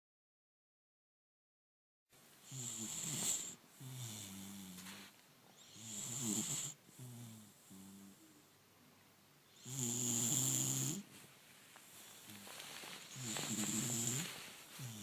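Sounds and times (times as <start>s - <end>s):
dog snoring: 2.4s - 8.4s, 9.5s - 11.1s, 13.1s - 15.0s.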